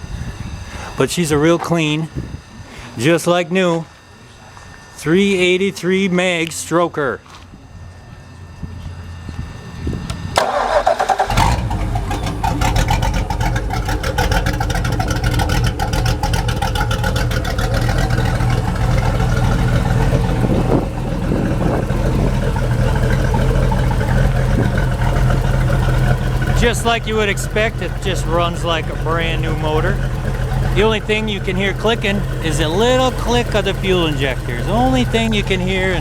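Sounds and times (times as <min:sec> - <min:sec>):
boat engine idling: 0:07.7 - 0:36.0
engine starter cranking: 0:10.1 - 0:36.0
fuel injectors clicking: 0:10.4 - 0:36.0.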